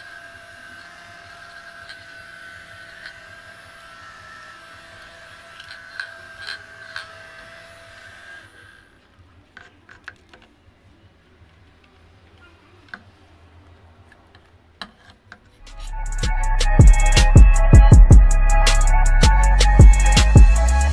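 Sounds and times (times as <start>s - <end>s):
small electric motor whining: 0.0s - 9.2s
music with a beat: 15.6s - 20.9s.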